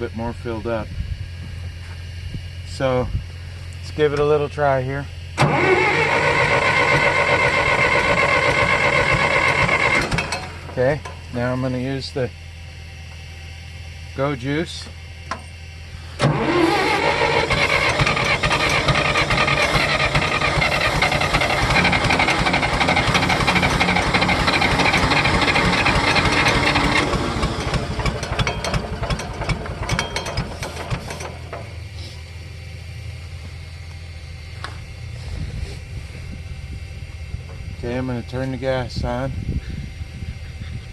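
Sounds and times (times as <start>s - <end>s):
tractor engine starting and dying: 3.8s - 12.2s, 14.3s - 32.5s.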